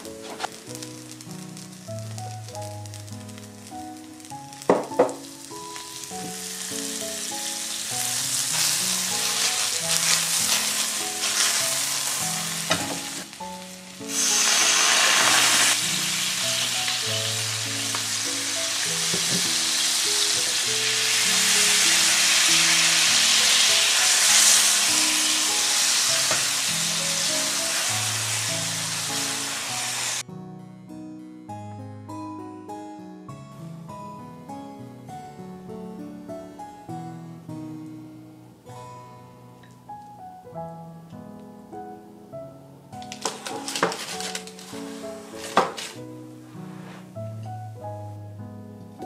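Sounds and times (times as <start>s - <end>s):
patties sizzling in butter: 0.0s - 30.2s, 43.0s - 46.0s
sauce bubbling in hot pan: 0.6s - 30.2s.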